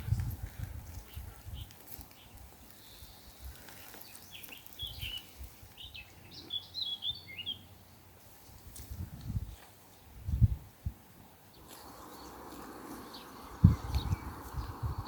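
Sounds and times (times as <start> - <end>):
small songbird chirping: 0.9 - 7.8, 11.4 - 15.0.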